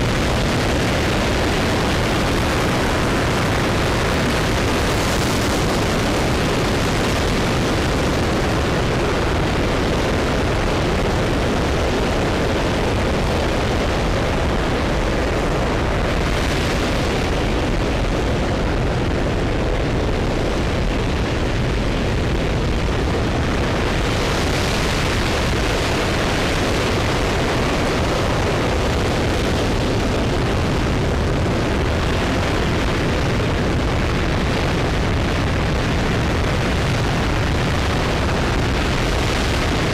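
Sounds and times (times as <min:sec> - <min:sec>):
rocket engine roaring: 0:00.0 - 0:39.9.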